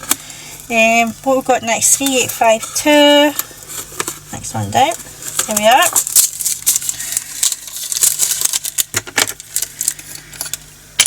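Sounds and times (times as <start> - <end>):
tiny resin beads rattling in plastic: 4.8 - 10.6.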